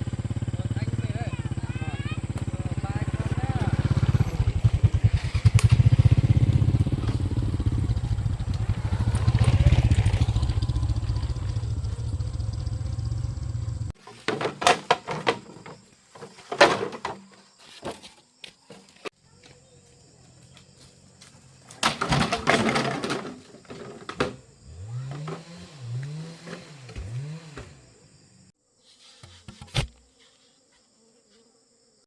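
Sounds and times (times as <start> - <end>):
motorbike engine throbbing: 0.0 - 14.0.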